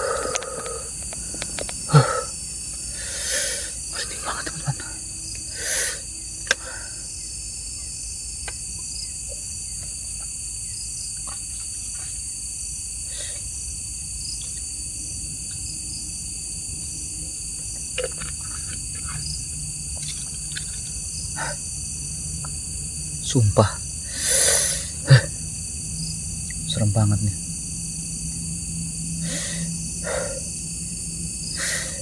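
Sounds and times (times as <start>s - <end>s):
crickets and insects trilling: 0.0s - 32.0s.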